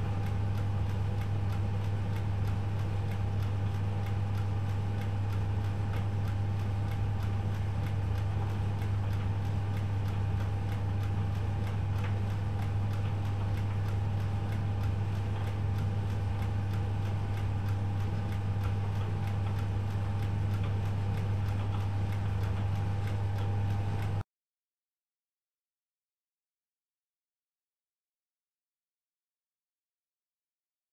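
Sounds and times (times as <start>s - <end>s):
light regular ticking: 0.0s - 24.2s
washing machine humming: 0.0s - 24.2s.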